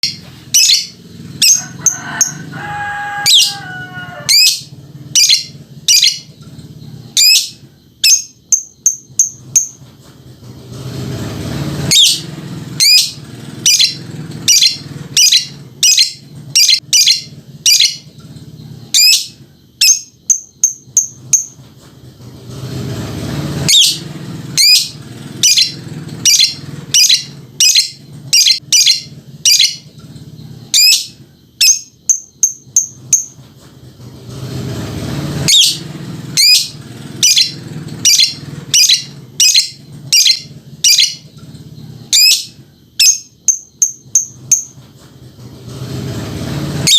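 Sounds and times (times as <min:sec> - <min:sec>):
lovebird shrill chirps: 0:00.0 - 0:02.4, 0:03.0 - 0:06.3, 0:07.2 - 0:09.8, 0:11.9 - 0:12.2, 0:12.8 - 0:18.1, 0:18.9 - 0:21.6, 0:24.6 - 0:29.8, 0:30.7 - 0:33.4, 0:35.5 - 0:35.8, 0:36.4 - 0:41.2, 0:42.1 - 0:44.7.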